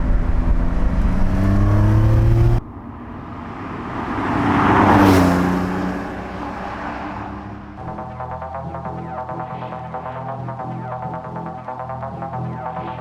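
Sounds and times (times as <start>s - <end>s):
car passing by: 0.0s - 8.1s
car engine accelerating: 0.0s - 10.3s.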